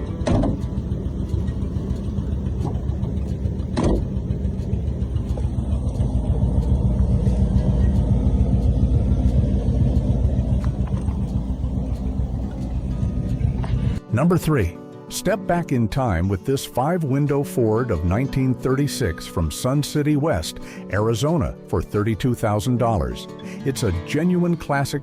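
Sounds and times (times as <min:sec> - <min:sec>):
car engine rumbling: 0:00.0 - 0:14.0
sharp knock: 0:00.2 - 0:00.7, 0:03.8 - 0:04.1.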